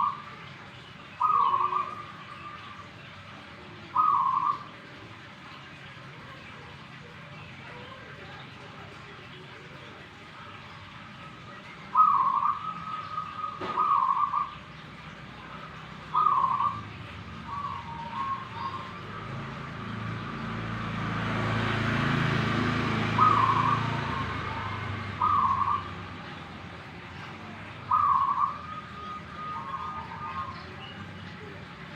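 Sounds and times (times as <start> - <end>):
dove cooing: 1.2 - 2.8, 3.9 - 4.7, 11.9 - 14.6, 16.1 - 19.2, 22.6 - 26.4, 27.2 - 31.6.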